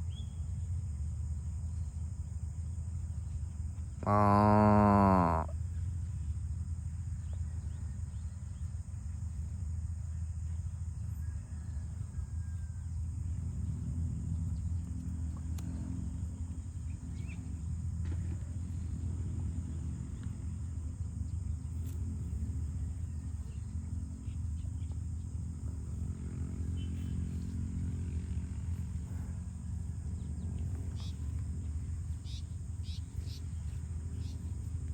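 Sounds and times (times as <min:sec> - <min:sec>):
cattle lowing: 0:04.0 - 0:05.6.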